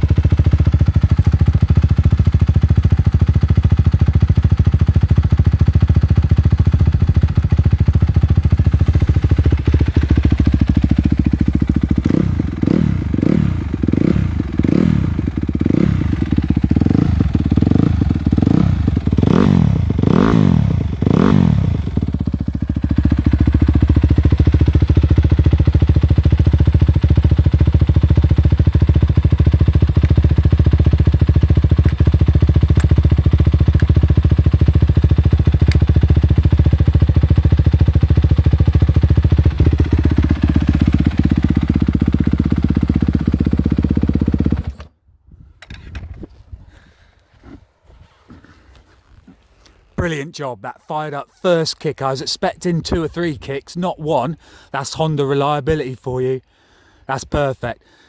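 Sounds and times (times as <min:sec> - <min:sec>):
motorcycle engine idling and revving: 0:00.0 - 0:45.0.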